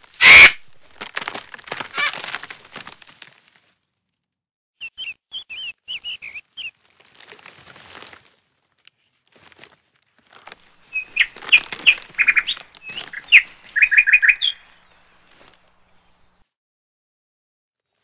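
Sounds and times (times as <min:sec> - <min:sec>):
knife crunching through vegetable: 0:00.0 - 0:03.4
small bird chirping: 0:04.8 - 0:06.8, 0:10.8 - 0:16.4.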